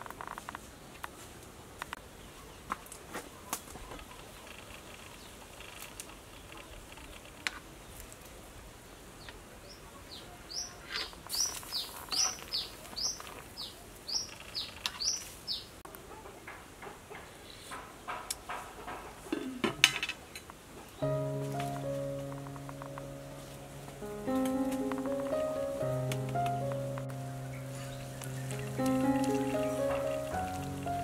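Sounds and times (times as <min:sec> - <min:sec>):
bird chirping rapidly: 0:25.0 - 0:31.0.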